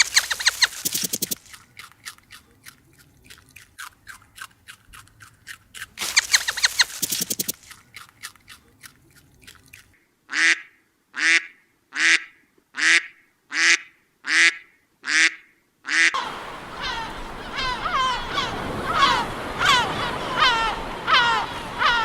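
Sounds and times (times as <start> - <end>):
quick clicks: 0.0 - 2.0, 5.8 - 8.4
bird nasal duck-like calls: 10.3 - 22.0.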